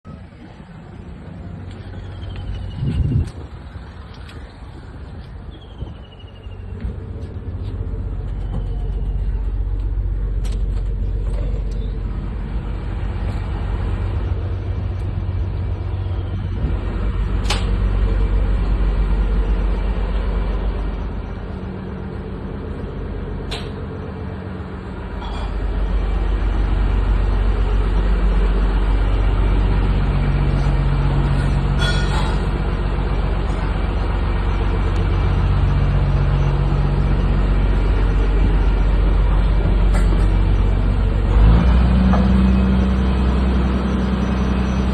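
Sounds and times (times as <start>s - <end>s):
engine rumbling: 0.0s - 44.9s.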